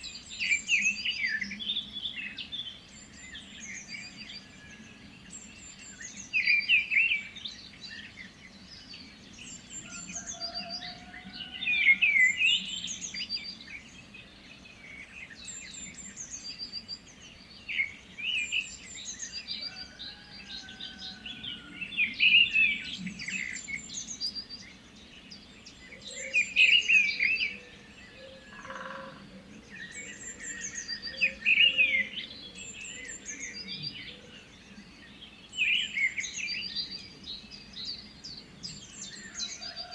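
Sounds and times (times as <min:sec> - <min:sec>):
birds warbling song: 0:00.0 - 0:39.9
faint bird calls: 0:27.1 - 0:29.5.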